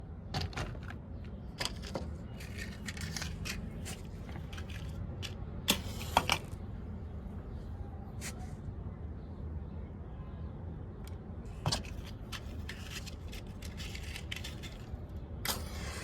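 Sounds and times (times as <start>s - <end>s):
objects clicking and rustling: 0.3s - 6.6s, 11.1s - 15.6s.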